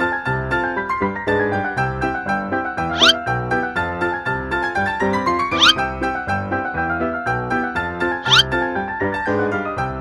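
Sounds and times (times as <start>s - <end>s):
piano music: 2.2s - 9.7s.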